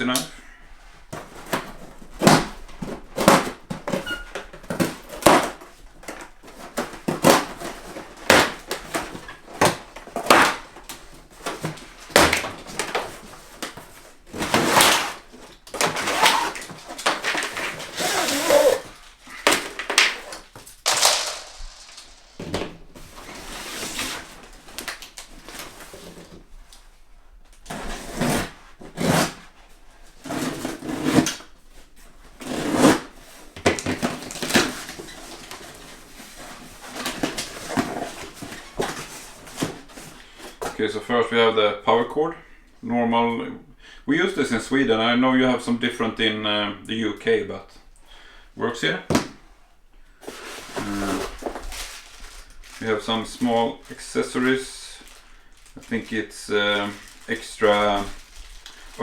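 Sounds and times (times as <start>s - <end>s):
scraping and rasping: 14.3s - 24.2s
package handling knocks and clicks: 19.4s - 23.1s.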